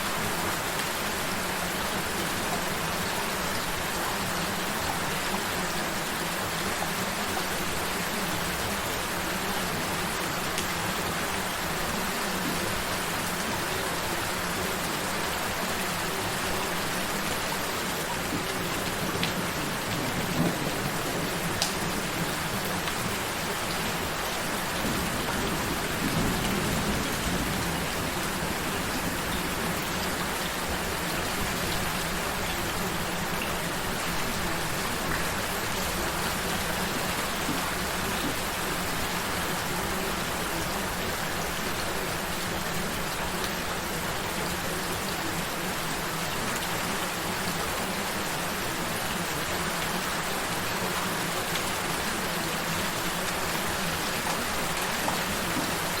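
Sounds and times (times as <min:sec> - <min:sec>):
gentle rain falling: 0:00.0 - 0:56.0.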